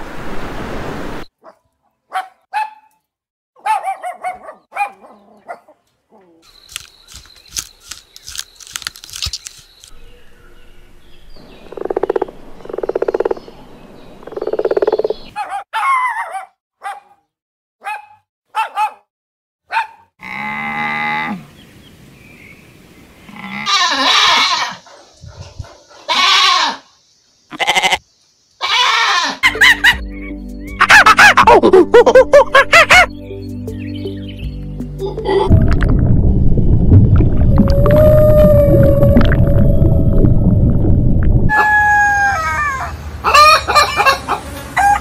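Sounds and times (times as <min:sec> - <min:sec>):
goats bleating: 0:23.4 - 0:24.8, 0:26.1 - 0:26.8, 0:27.5 - 0:28.0, 0:28.6 - 0:29.4.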